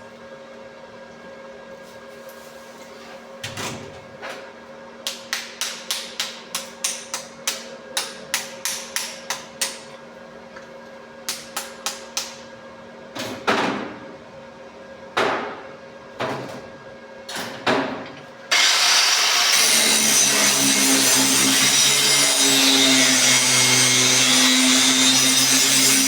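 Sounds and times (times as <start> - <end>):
power tool whirring: 18.5 - 26.0.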